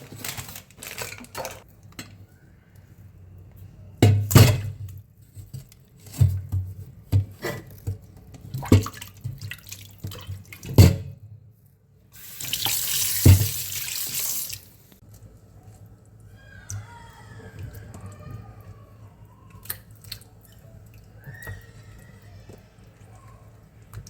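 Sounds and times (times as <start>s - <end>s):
knocks and thuds of items handled: 4.0s - 9.4s
water tap running: 12.2s - 14.8s.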